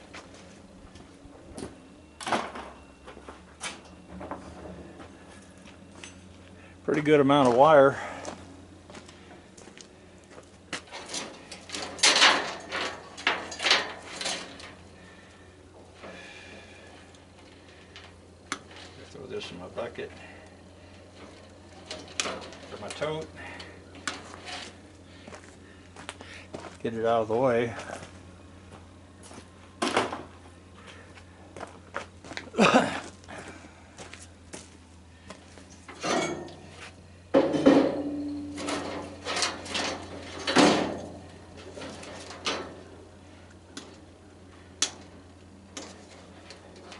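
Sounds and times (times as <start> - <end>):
scrap parts clattering: 10.9 - 14.8, 35.8 - 36.8, 37.4 - 42.8
scrap wiring sliding scrapes: 24.0 - 24.8.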